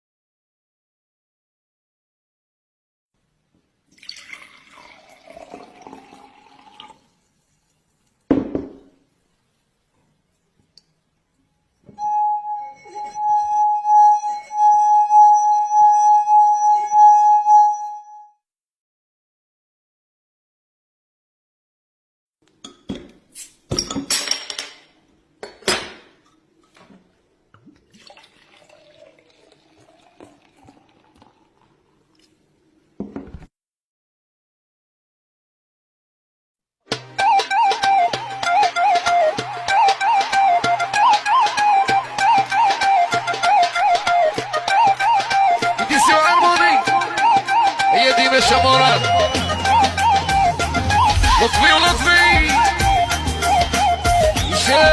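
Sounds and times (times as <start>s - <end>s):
liquid pouring into glass: 3.9s - 7.3s, 27.5s - 32.4s
singing glass ringing tone: 12.0s - 18.4s.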